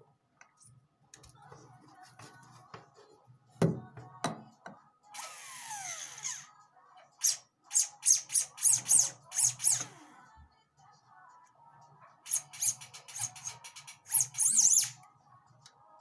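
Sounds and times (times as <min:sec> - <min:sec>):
small rotary tool spinning down: 0:05.2 - 0:06.5, 0:12.3 - 0:14.9.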